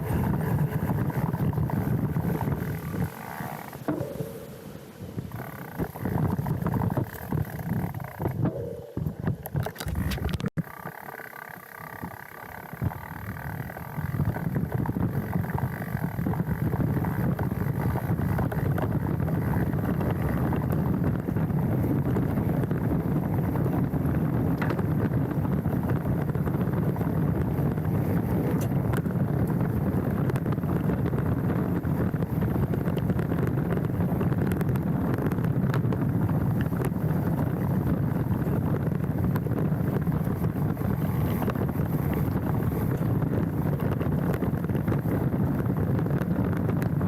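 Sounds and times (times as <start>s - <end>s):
bike rattles and knocks: 0.0s - 4.6s, 5.2s - 47.0s
bike tyres rumbling over dirt: 0.0s - 47.0s
wind on microphone: 0.0s - 47.0s
bike rattling clicks: 5.3s - 21.0s.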